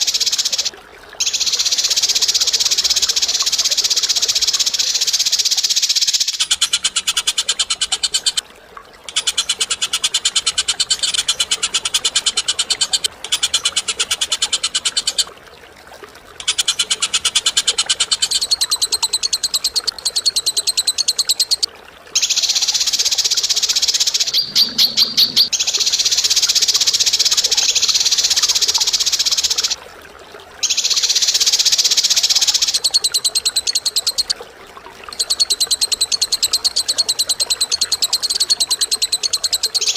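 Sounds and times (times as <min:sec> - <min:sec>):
bird trilling: 0:16.4 - 0:25.5.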